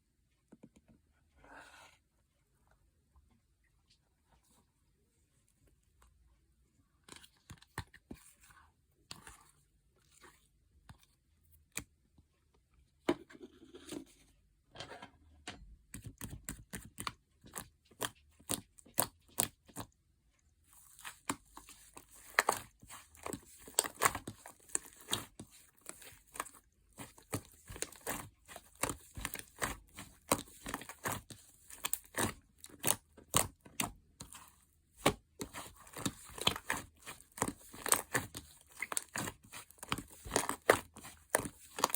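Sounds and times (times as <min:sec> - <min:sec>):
slime squished by hand: 0:20.7 - 0:41.9.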